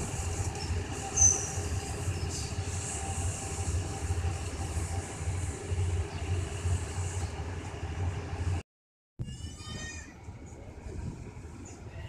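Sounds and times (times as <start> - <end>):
diesel train engine rumble: 0.0 - 8.6, 9.2 - 12.0
wheels hissing on rail: 0.0 - 8.6.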